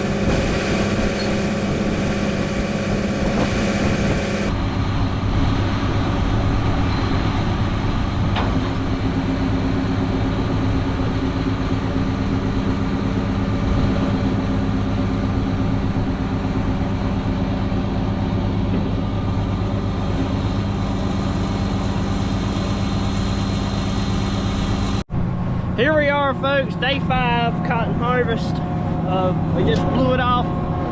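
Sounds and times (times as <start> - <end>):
diesel engine running: 0.0 - 5.7, 7.2 - 25.7.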